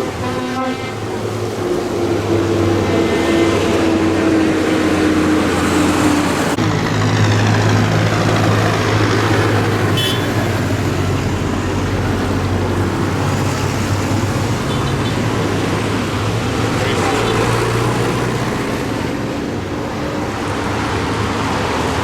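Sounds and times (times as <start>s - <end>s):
tractor engines running: 0.0s - 22.0s.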